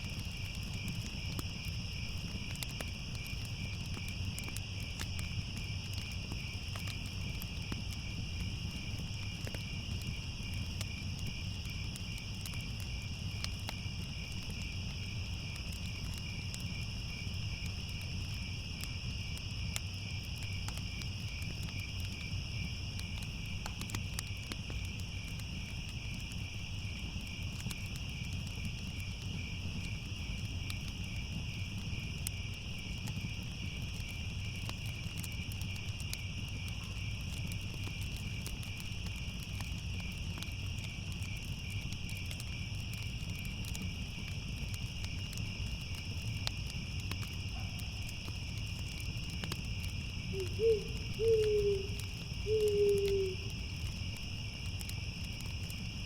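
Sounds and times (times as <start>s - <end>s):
crickets chirping: 0.0s - 56.0s
wood fire crackling: 0.0s - 56.0s.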